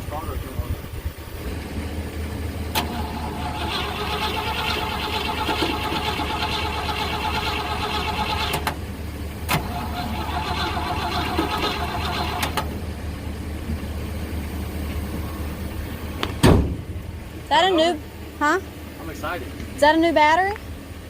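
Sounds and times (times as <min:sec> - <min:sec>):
starter motor cranking engine: 0:02.7 - 0:12.8.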